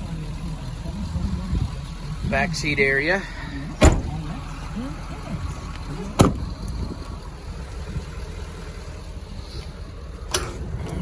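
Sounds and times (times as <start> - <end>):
steady low rumble: 0.0 - 11.0
truck door shutting: 3.7 - 4.4, 5.3 - 7.1, 10.2 - 11.0.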